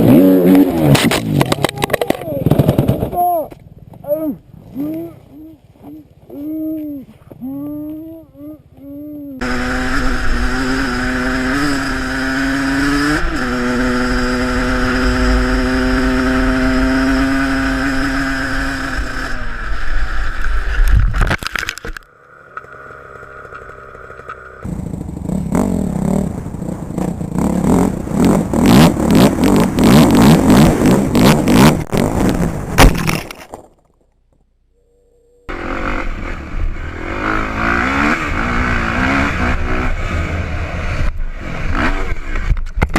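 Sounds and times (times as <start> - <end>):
motocross bike engine running: 22.7 - 32.0.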